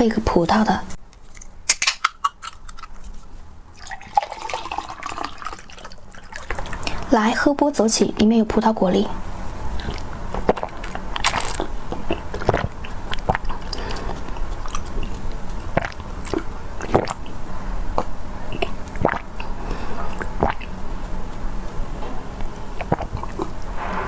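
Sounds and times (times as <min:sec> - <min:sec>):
mouth clicks and chewing: 0:01.1 - 0:04.2, 0:05.6 - 0:07.7, 0:09.7 - 0:23.7
wet swallowing: 0:03.7 - 0:07.1, 0:09.1 - 0:24.0.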